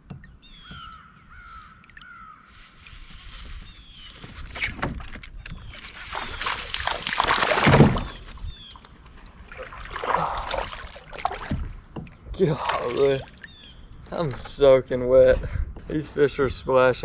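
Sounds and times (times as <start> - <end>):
fish splashing at water surface: 5.8 - 11.8.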